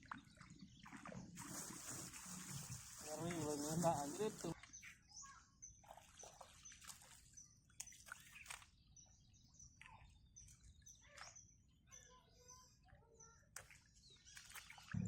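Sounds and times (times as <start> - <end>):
faint bird chirps: 4.6 - 15.0.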